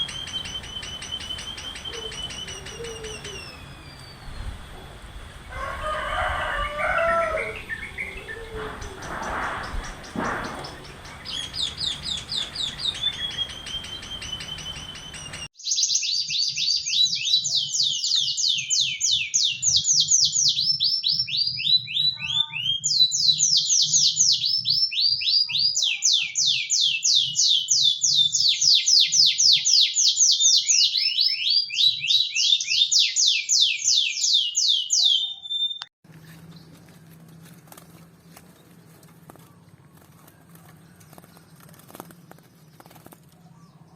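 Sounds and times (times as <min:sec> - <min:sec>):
songbird trilling: 0:00.0 - 0:04.6, 0:06.6 - 0:36.8.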